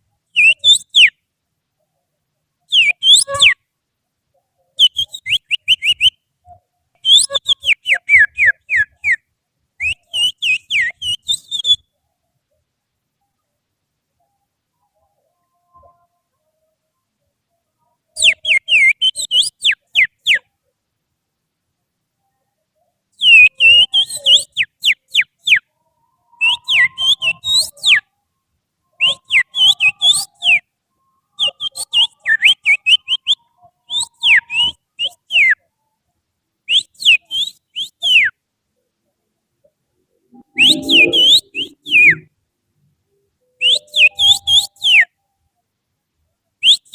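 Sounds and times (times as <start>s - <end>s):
finger whistling bird song: 0.3s - 1.2s, 2.7s - 3.6s, 4.8s - 9.2s, 9.8s - 11.9s, 18.2s - 20.5s, 23.2s - 25.7s, 26.4s - 28.1s, 29.0s - 30.7s, 31.4s - 35.6s, 36.7s - 38.4s, 40.4s - 42.3s, 43.6s - 45.1s, 46.6s - 46.9s.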